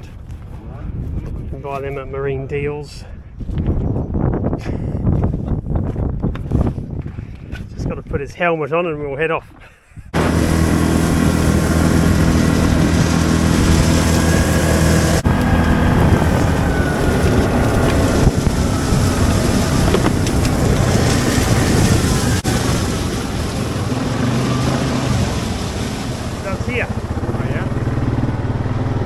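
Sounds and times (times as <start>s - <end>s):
wind buffeting microphone: 0.0s - 29.0s
atv engine running: 10.1s - 29.0s.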